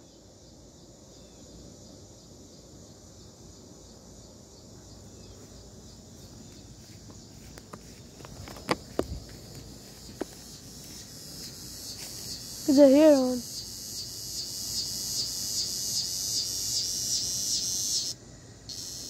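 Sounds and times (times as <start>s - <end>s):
insects shrilling: 5.3s - 19.0s.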